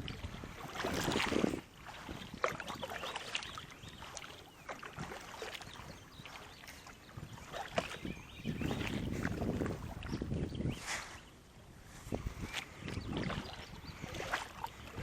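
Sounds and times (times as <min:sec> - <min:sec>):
water lapping around boat: 0:00.0 - 0:15.0.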